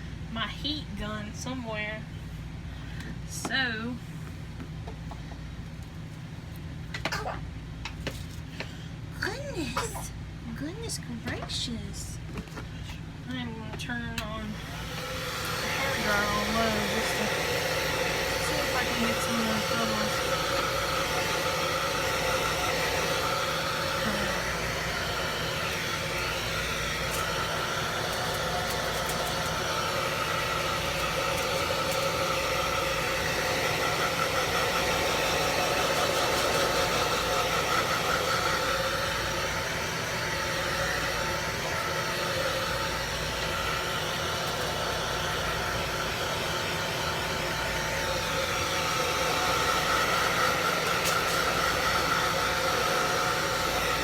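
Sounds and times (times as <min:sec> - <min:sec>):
hair dryer blowing: 0:13.3 - 0:54.0.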